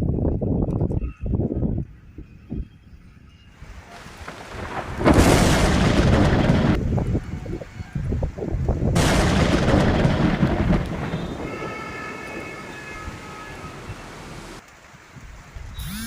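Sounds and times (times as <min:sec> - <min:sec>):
thunder rumbling and cracking: 0:03.7 - 0:14.2.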